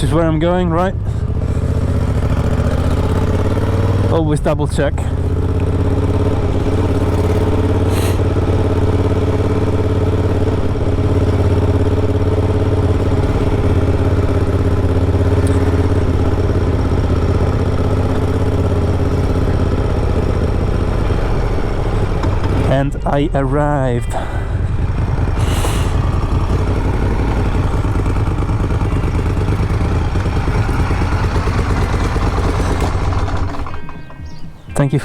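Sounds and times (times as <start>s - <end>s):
motorcycle engine droning: 0.0s - 35.0s.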